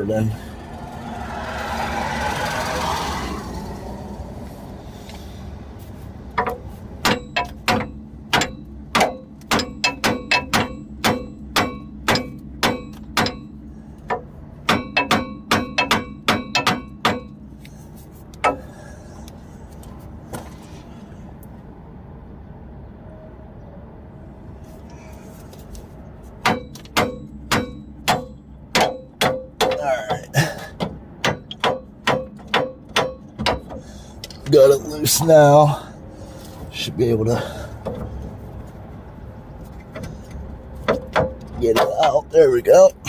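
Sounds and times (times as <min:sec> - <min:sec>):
hammer striking steel: 0:06.4 - 0:17.4, 0:26.4 - 0:33.8.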